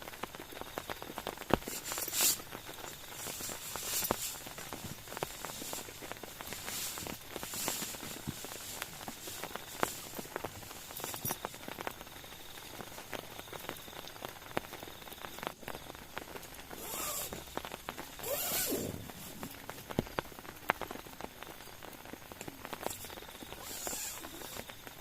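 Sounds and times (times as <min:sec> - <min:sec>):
light hiss: 0:00.0 - 0:25.0
rain tapping on a tarp: 0:00.0 - 0:25.0
rustling swishes: 0:01.6 - 0:11.3, 0:18.2 - 0:19.7.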